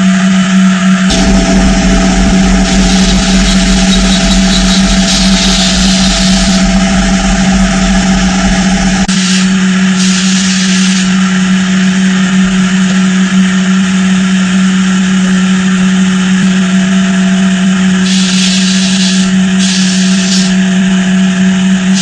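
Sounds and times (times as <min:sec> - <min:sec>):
low rumble: 0:01.0 - 0:09.1
power tool whirring: 0:01.1 - 0:09.2.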